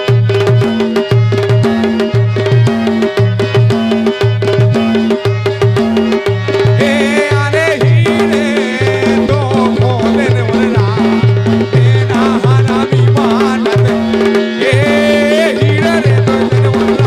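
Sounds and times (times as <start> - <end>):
brisk drum rhythm: 0.0 - 17.0
sliding melody line: 0.0 - 17.0.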